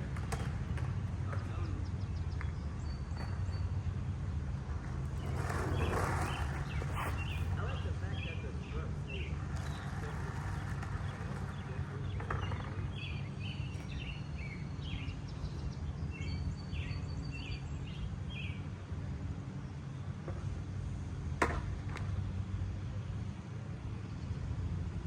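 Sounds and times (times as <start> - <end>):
small birds chirping: 1.2 - 18.7.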